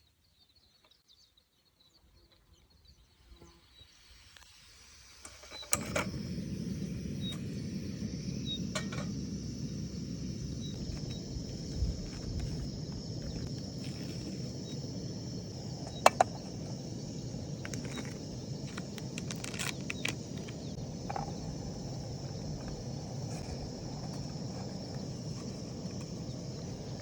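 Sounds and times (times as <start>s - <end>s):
high insect chirring: 5.2s - 27.0s
low outdoor rumble: 5.8s - 27.0s.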